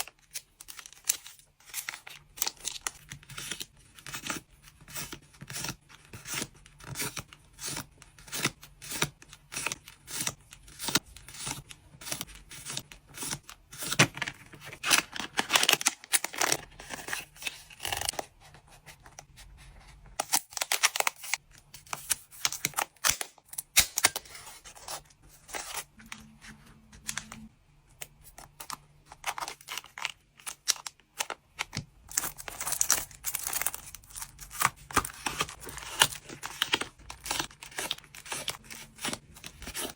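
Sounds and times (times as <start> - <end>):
plastic and paper packaging crinkling: 10.8 - 18.8, 28.2 - 39.9
packaging ripping: 32.1 - 39.9.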